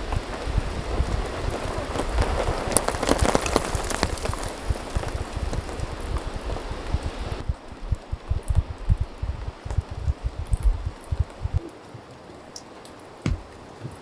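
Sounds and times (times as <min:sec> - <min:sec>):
rain drops tapping: 0:00.0 - 0:14.0
low dull thuds: 0:04.0 - 0:11.7, 0:13.2 - 0:14.0.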